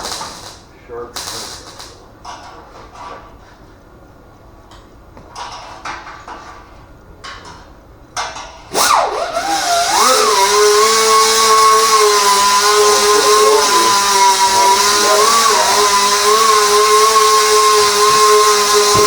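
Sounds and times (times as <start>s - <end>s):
angle grinder whining: 0.0s - 0.6s, 8.7s - 19.0s.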